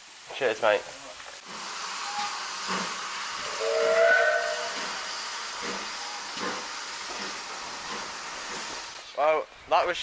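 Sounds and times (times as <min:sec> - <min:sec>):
steam locomotive hissing: 0:01.4 - 0:09.0.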